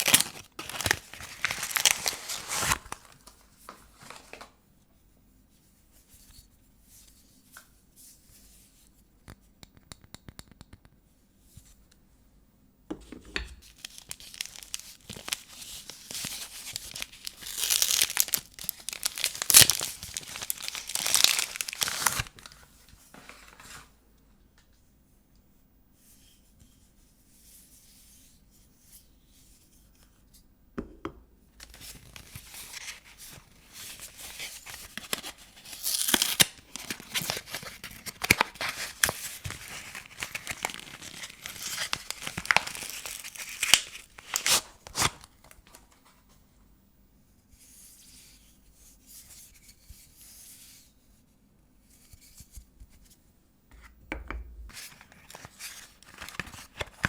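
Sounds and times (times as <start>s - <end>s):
paper wrapper tearing and crinkling: 0.0s - 3.4s, 13.6s - 22.6s, 31.6s - 45.8s, 54.7s - 57.0s.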